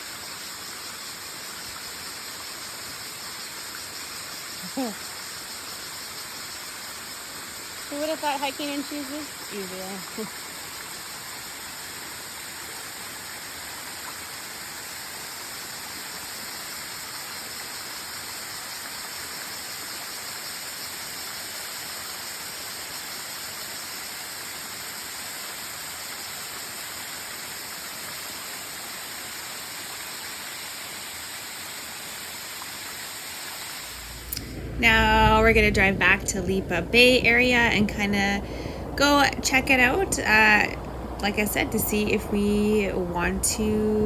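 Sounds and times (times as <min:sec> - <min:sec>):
waterfall rushing water: 0:25.0 - 0:44.0.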